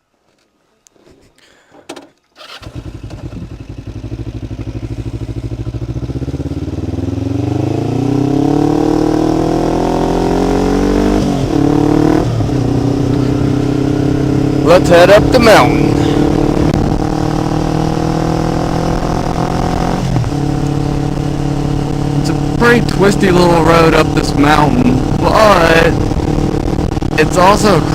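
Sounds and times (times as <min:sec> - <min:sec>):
motorcycle engine starting and idling: 0:02.0 - 0:07.8.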